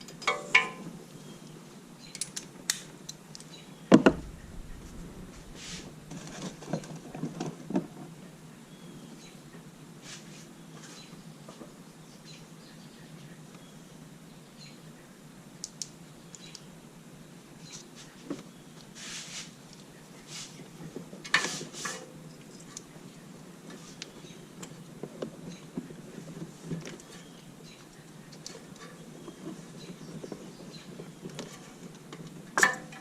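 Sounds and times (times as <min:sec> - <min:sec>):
steady low hum: 0:04.0 - 0:07.1.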